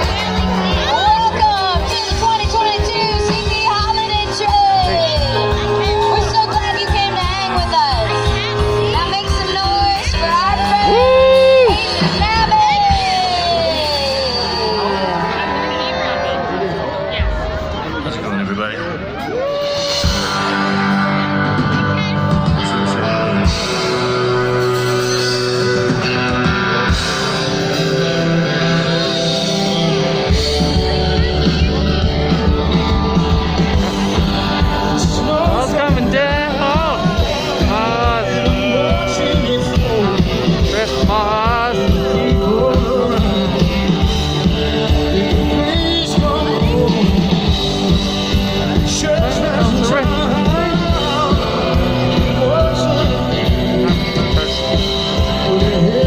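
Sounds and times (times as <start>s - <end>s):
drums: 0.0s - 56.0s
guitar chords: 0.0s - 56.0s
live rock band playing: 0.0s - 56.0s
steady bass: 0.0s - 56.0s
person singing: 26.9s - 56.0s.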